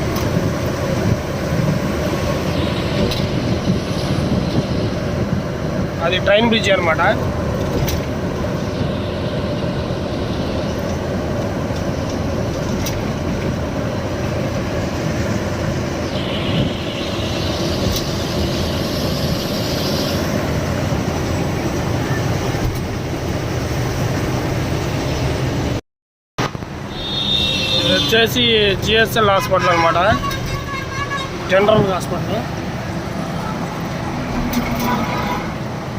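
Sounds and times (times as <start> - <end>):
lorry engine and tyres rumbling: 0.0 - 25.8, 26.4 - 35.9
hissing rush: 16.0 - 20.9.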